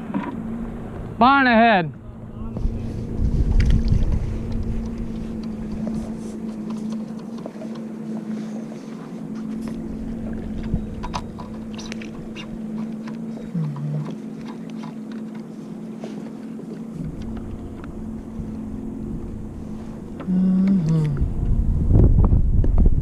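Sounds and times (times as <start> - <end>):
boat motor humming: 0.0 - 23.0
wind on microphone: 1.9 - 7.0, 9.6 - 12.8, 17.0 - 23.0
faint clicks and knocks: 3.5 - 15.5, 16.2 - 18.0.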